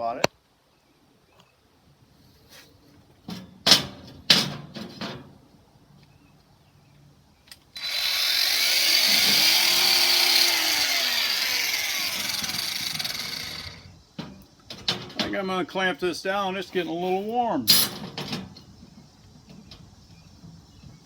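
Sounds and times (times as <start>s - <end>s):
angle grinder cutting steel: 7.8s - 13.9s.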